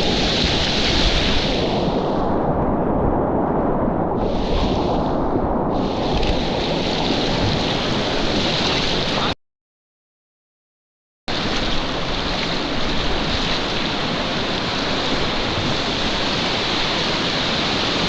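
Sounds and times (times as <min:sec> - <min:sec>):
wind noise on microphone: 0:00.0 - 0:09.4, 0:11.3 - 0:18.0
river water rushing: 0:11.3 - 0:18.0.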